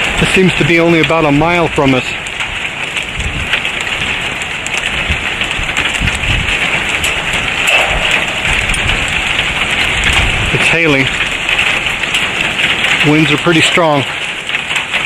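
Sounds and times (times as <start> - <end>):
heavy rain falling: 0.0 - 15.0
wind buffeting microphone: 1.7 - 15.0
sharp ticks: 7.0 - 10.3.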